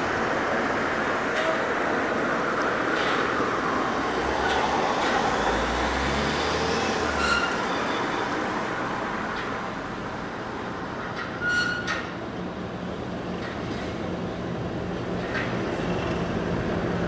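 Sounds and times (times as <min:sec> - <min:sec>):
train rumbling past: 0:00.0 - 0:17.0
high-pitched wheel squeals: 0:06.9 - 0:08.5, 0:11.2 - 0:12.1.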